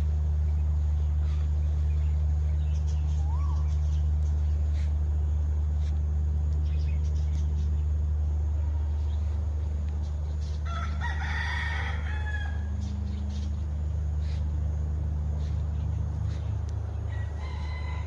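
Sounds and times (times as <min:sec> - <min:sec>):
steady low rumble: 0:00.0 - 0:18.0
fowl crowing: 0:10.6 - 0:13.0, 0:17.1 - 0:18.0.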